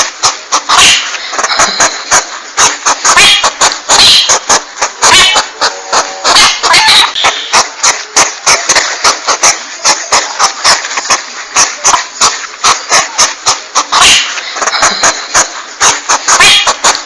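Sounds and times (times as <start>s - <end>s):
hissing noise: 0.0s - 17.0s.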